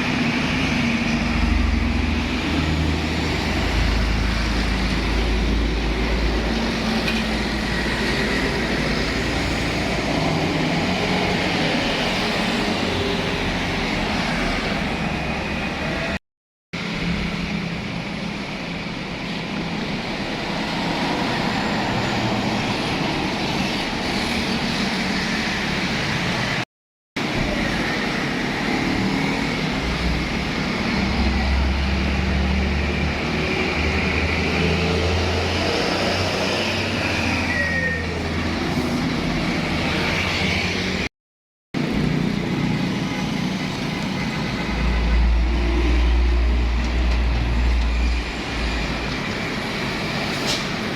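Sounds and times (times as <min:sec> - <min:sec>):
trucks passing with deep rumble: 0:00.0 - 0:16.2, 0:27.2 - 0:41.1, 0:41.8 - 0:50.9
road traffic: 0:00.0 - 0:41.1, 0:41.8 - 0:50.9.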